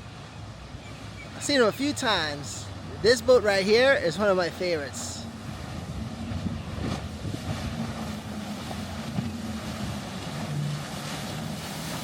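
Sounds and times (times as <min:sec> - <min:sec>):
motorboat engines droning: 0:00.0 - 0:12.0
wind noise on microphone: 0:05.3 - 0:12.0.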